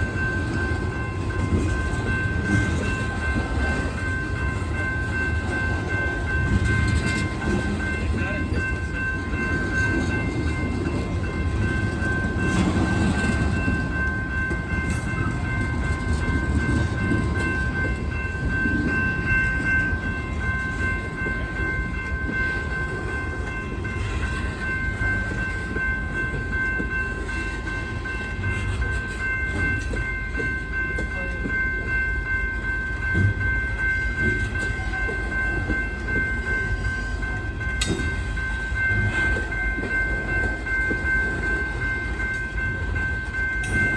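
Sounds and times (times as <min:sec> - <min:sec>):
freight train cars rumbling: 0:00.0 - 0:43.9.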